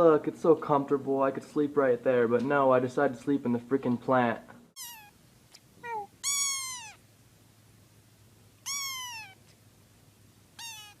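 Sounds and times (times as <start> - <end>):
cat meowing: 4.8 - 5.2, 5.8 - 7.0, 8.6 - 9.5, 10.6 - 11.0.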